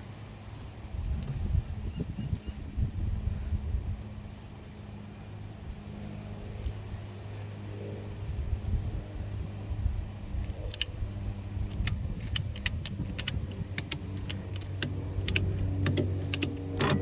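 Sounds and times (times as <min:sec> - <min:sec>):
steady low hum: 0:00.9 - 0:17.0
sharp metallic clicks of tightening: 0:10.4 - 0:11.0, 0:11.6 - 0:17.0.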